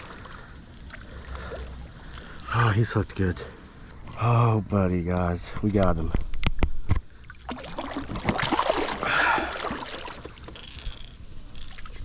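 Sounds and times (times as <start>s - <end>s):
water splashing: 0.0s - 3.4s, 6.8s - 12.0s.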